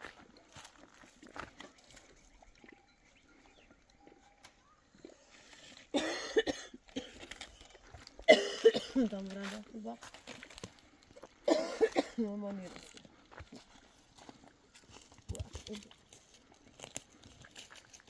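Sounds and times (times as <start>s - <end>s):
woman coughing hard: 5.9s - 7.2s, 8.3s - 9.2s, 11.5s - 12.3s.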